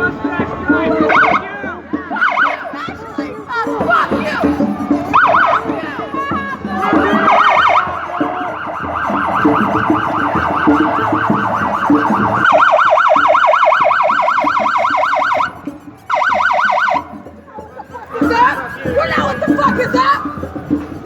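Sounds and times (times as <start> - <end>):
police siren yelping: 0.9 - 1.5, 2.1 - 3.0, 3.7 - 17.3.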